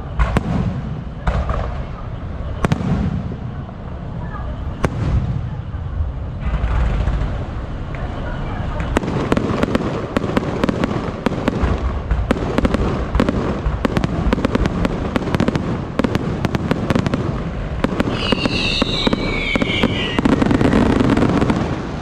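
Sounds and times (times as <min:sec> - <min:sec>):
fireworks crackling and popping: 0:00.0 - 0:04.0, 0:06.4 - 0:08.1, 0:08.8 - 0:22.0
falling firework whistle: 0:17.8 - 0:21.6.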